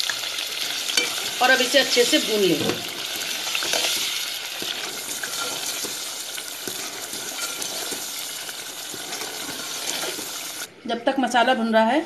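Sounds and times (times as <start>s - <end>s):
paste sizzling in hot oil: 0.0s - 10.7s
steel ladle clinking and scraping: 0.9s - 1.3s, 3.1s - 10.5s.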